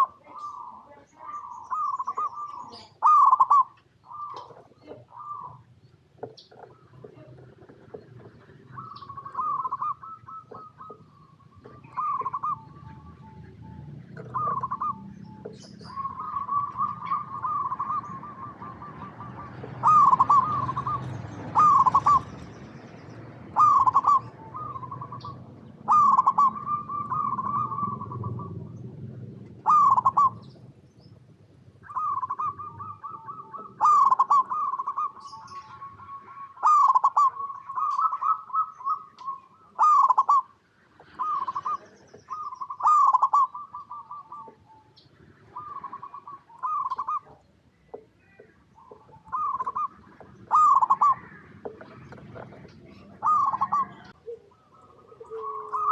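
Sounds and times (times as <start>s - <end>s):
doves cooing: 0.0s - 55.9s.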